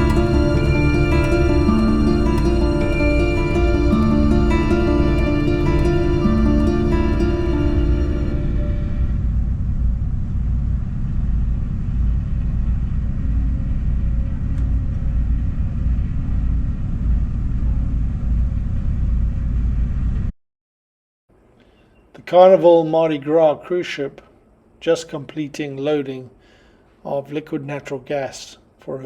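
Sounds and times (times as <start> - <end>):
boat engine rumble: 0.0 - 14.5.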